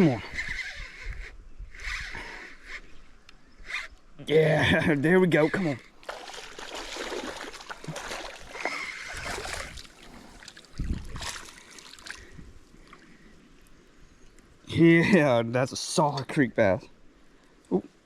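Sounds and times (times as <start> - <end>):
fish thrashing and splashing water: 6.0 - 12.3.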